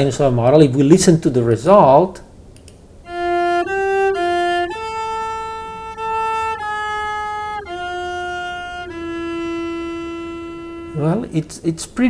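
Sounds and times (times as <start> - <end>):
synthesized cello melody: 3.0 - 11.5.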